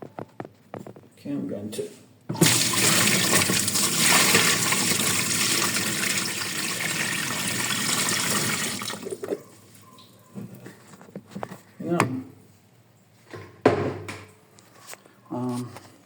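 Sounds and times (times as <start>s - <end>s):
water rushing into container: 2.4s - 9.2s.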